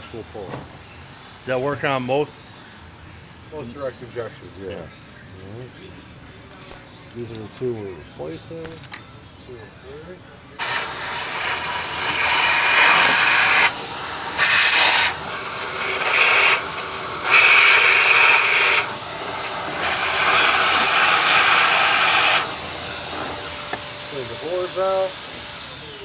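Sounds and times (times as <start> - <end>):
loud rushing air from nozzle: 10.6 - 26.0.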